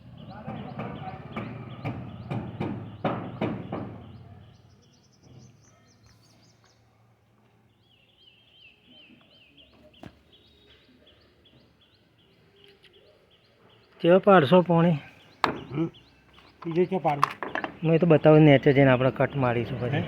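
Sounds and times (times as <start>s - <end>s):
small birds chirping: 0.0s - 20.0s
sharp knocks: 0.3s - 4.2s, 15.4s - 15.8s.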